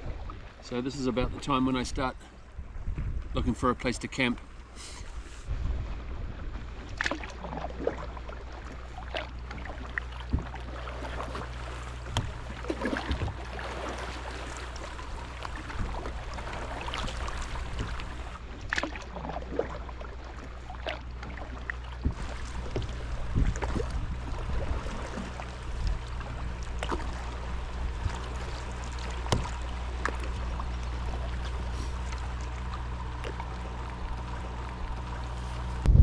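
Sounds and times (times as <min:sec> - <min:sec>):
steady low rumble: 0:00.0 - 0:36.0
water washing against hull: 0:00.0 - 0:36.0
paddle splashing in water: 0:04.8 - 0:35.9.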